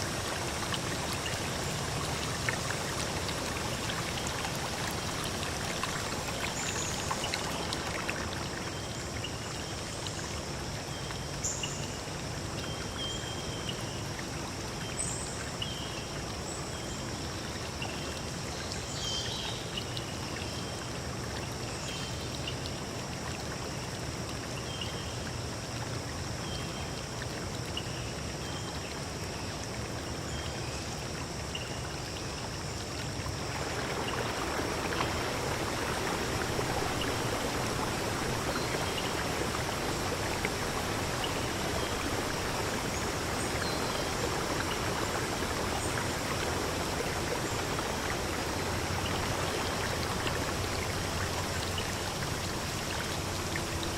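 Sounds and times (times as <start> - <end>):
stream running over stones: 0.0 - 53.9.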